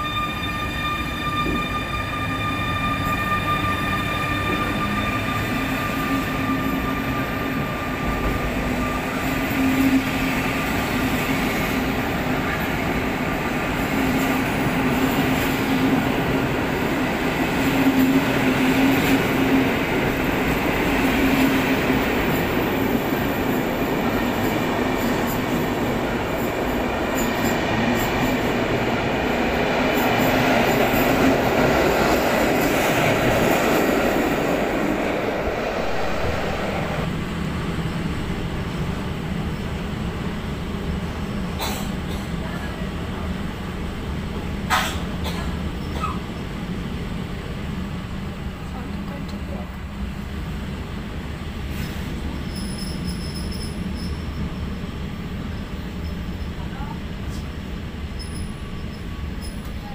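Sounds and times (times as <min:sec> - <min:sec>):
electric locomotive whine: 0:00.0 - 0:41.6
train coaches rumbling past: 0:00.0 - 0:59.9.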